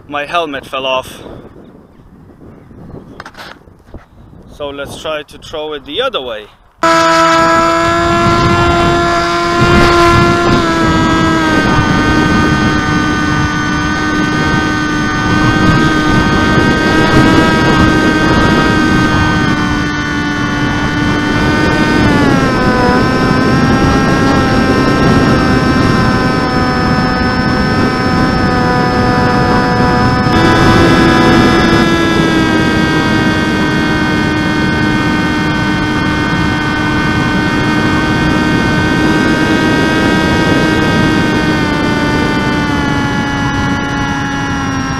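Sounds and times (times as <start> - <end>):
rush of wind: 0.0 - 44.9
electric motor whine: 6.8 - 44.9.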